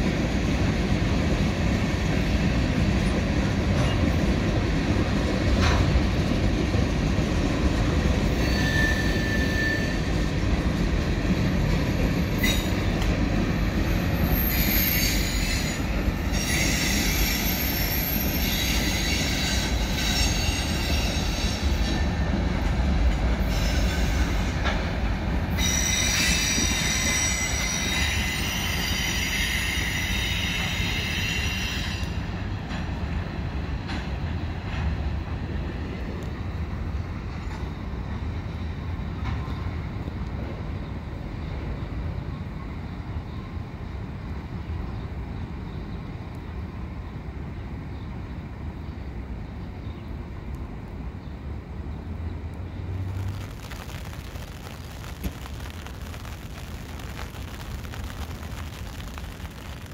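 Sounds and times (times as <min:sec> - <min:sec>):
freight train rumbling past: 0:00.0 - 0:59.9
train wheels squealing: 0:08.2 - 0:10.4, 0:11.3 - 0:22.3, 0:23.4 - 0:24.8, 0:25.5 - 0:32.4.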